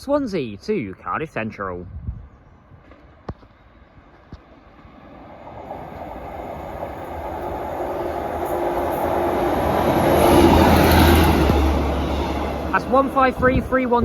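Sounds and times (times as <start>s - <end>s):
diesel railcars passing: 3.6s - 14.0s.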